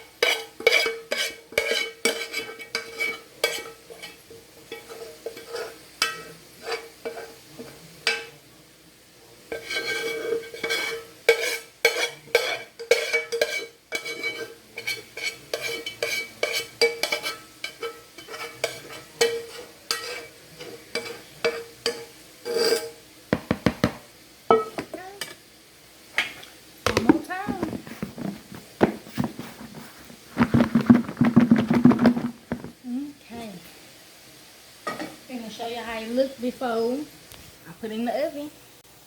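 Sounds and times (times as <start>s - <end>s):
metal utensil clinking on pan: 0.2s - 8.4s, 9.5s - 23.6s, 24.5s - 25.4s.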